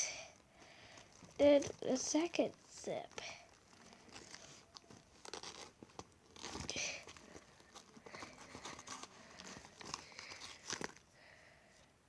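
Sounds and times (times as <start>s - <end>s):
crinkly rustle: 0.3s - 11.1s
purse rustling and clicking: 0.4s - 2.0s, 3.1s - 11.1s.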